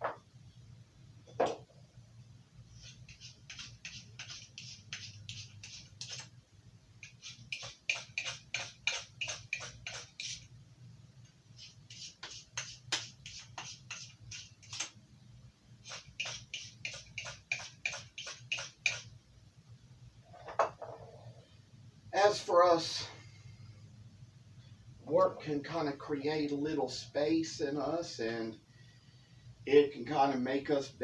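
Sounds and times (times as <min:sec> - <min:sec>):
knife scraping on ceramic sharpener: 0:02.8 - 0:06.3, 0:07.0 - 0:10.5, 0:15.8 - 0:19.1.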